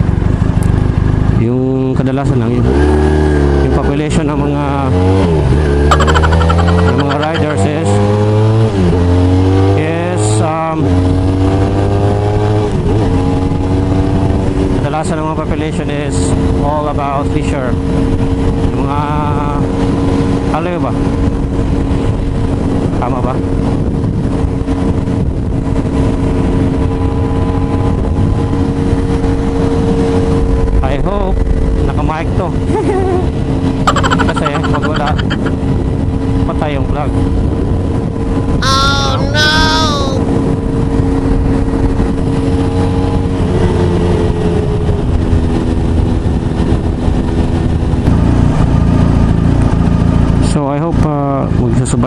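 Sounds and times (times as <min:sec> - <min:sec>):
wind rush on microphone: 0:12.4 - 0:33.9, 0:34.8 - 0:38.6, 0:40.2 - 0:50.4.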